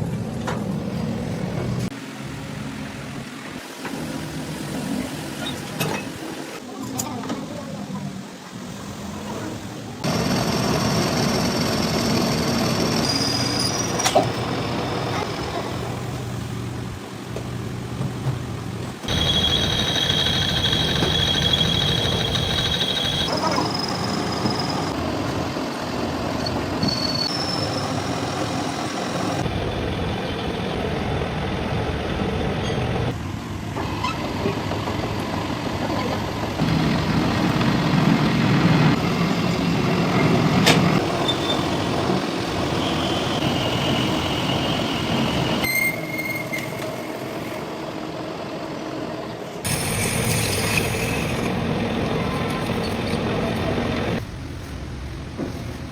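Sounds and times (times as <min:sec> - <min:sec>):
heavy machinery metalworking: 0:10.0 - 0:16.4, 0:18.9 - 0:54.3.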